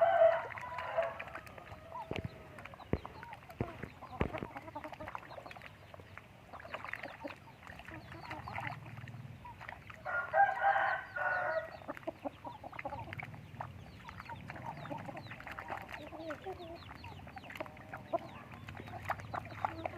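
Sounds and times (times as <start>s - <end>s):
rooster crowing: 0.0s - 2.0s, 10.0s - 11.7s
chickens clucking: 0.0s - 19.9s.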